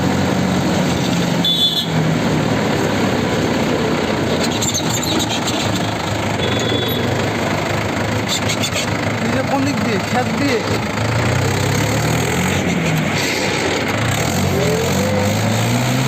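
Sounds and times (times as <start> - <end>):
tractor diesel engine running: 0.0 - 16.0
high-pitched squeal: 4.3 - 7.3, 12.4 - 16.0
short high tone: 6.4 - 7.2.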